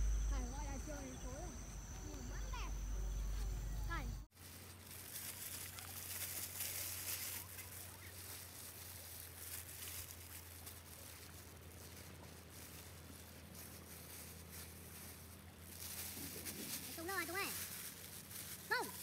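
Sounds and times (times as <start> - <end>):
faint low hum: 0.0 - 19.0
quiet outdoor ambience: 0.0 - 19.0
plastic gloves crinkling: 4.3 - 19.0.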